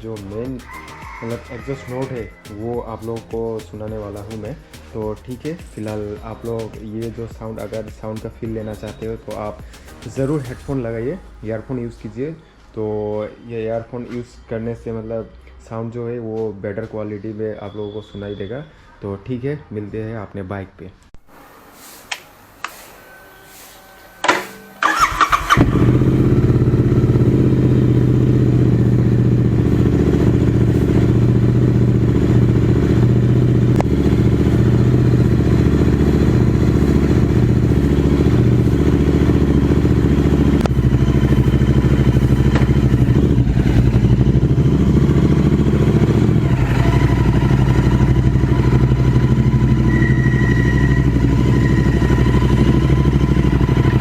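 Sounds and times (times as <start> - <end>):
motorcycle engine idling: 0.0 - 10.5, 24.2 - 54.0
motorcycle engine starting: 0.0 - 10.8, 24.2 - 54.0.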